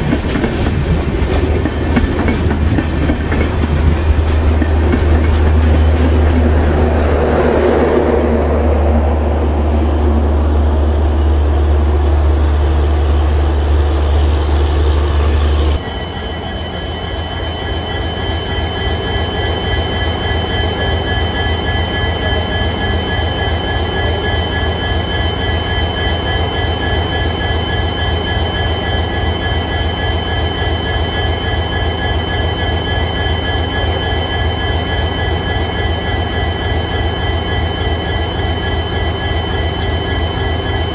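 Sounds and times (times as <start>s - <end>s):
train wheels clattering: 0.0s - 8.1s
train low rumble: 0.0s - 40.9s.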